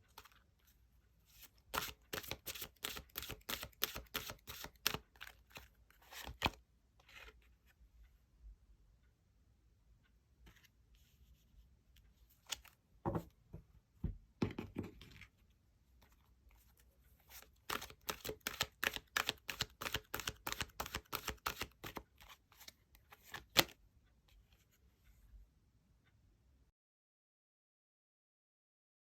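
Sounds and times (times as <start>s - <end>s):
cards shuffled by hand: 1.3s - 7.4s, 17.3s - 23.8s.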